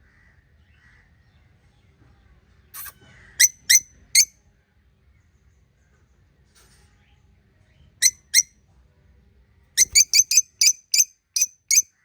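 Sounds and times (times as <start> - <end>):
budgerigars chirping: 9.8 - 11.8.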